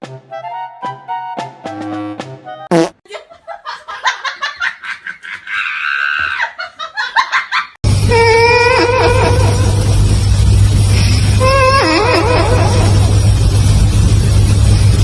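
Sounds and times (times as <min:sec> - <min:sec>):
person laughing hard: 0:03.1 - 0:07.8.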